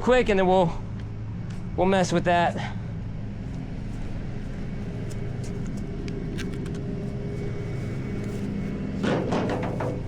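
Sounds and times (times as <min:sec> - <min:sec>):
truck engine running: 0:02.8 - 0:10.0.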